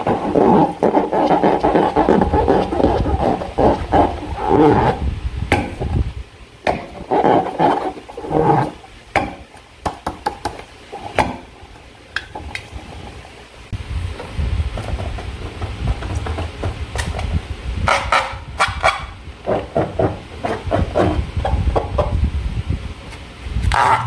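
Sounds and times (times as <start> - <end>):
slime and balloon squelching: 0.0 - 5.0, 6.8 - 8.8.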